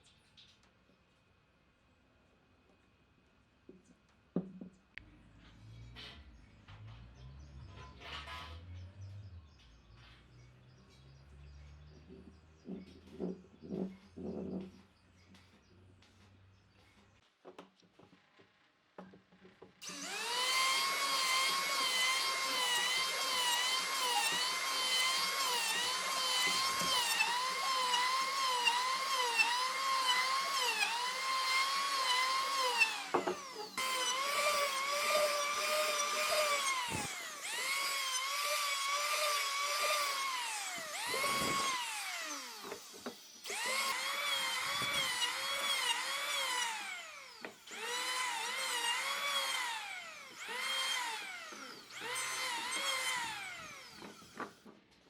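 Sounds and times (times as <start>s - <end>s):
power tool motor whining: 19.8s - 54.6s.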